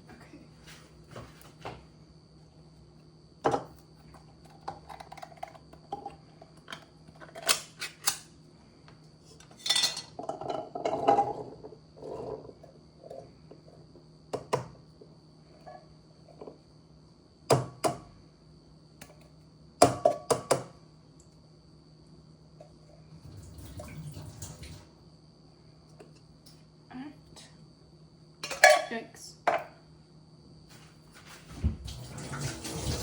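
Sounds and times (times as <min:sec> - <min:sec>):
faint steady hum: 0:00.0 - 0:33.0
dishes and utensils clinking: 0:09.5 - 0:11.4, 0:28.4 - 0:28.9.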